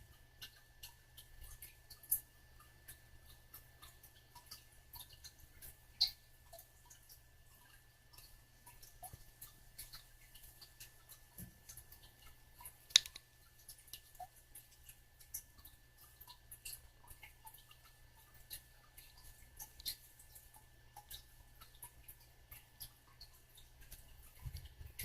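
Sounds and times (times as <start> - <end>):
parrot beak clicking: 12.6 - 14.1.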